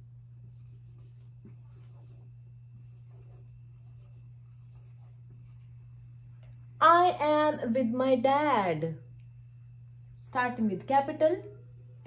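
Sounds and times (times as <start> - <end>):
low hum: 0.0 - 12.0
pen scratching while writing: 0.5 - 5.2.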